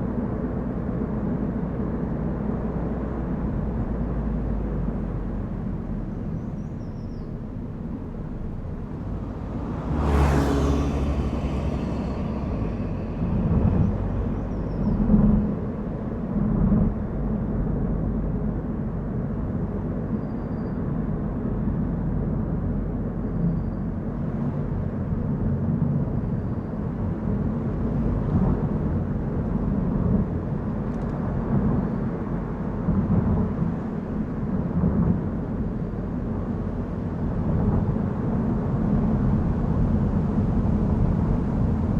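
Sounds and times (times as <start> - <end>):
car engine and tyres rumbling: 0.0 - 41.9
rushing swell: 8.9 - 14.3.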